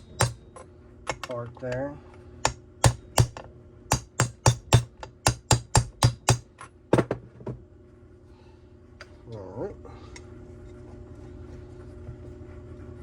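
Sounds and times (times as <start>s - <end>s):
hammer tapping metal: 0.0s - 1.3s, 2.4s - 6.7s.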